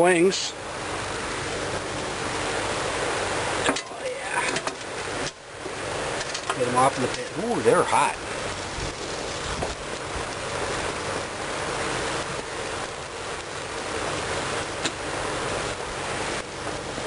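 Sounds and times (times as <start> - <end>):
gas grill hissing: 0.0 - 17.0.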